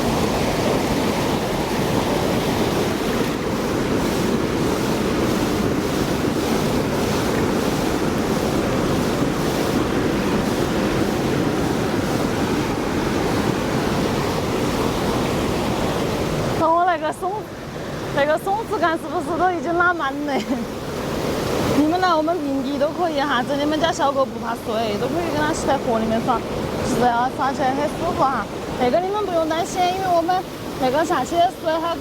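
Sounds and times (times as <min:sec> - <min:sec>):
flowing river water: 0:00.0 - 0:32.0.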